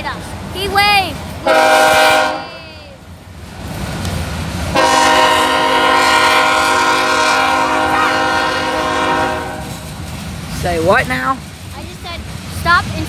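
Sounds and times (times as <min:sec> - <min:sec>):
train rumbling: 0:00.0 - 0:13.0
locomotive air horn blast: 0:01.4 - 0:02.7, 0:04.7 - 0:09.9.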